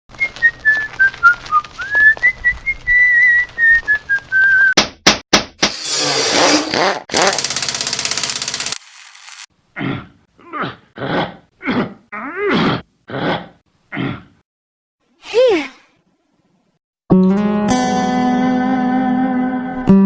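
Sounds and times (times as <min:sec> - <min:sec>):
person whistling a tune: 0:00.2 - 0:04.8.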